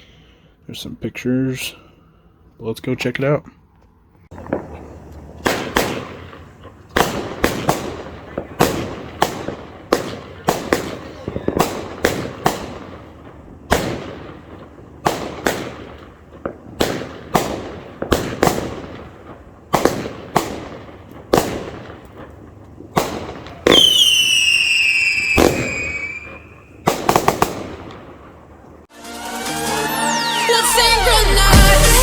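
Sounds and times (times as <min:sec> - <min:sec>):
fireworks bangs: 0:04.3 - 0:28.9
firework whistle: 0:23.6 - 0:27.0, 0:29.0 - 0:31.1.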